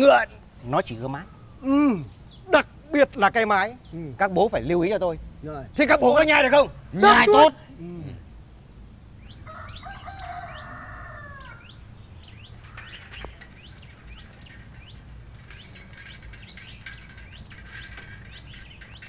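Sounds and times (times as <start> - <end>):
birds chirping: 0.0 - 19.0
long falling bird call: 9.2 - 19.0.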